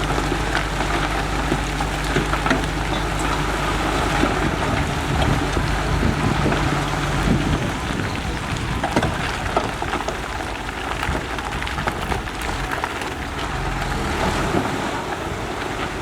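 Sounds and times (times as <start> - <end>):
diesel engine running: 0.0 - 16.0
wind noise on microphone: 3.2 - 16.0.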